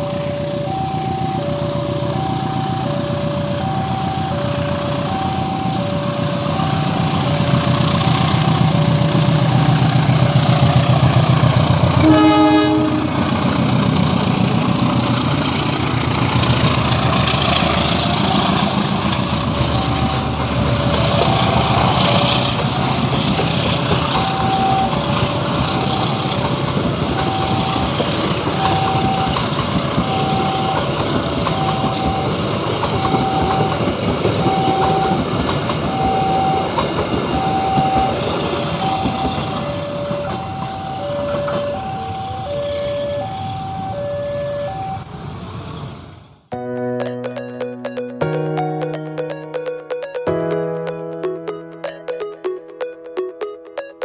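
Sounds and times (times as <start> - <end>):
level crossing alarm: 0.0 - 45.7, 47.0 - 54.0
train rumbling on rails: 0.0 - 46.5
train horn blast: 11.8 - 13.8.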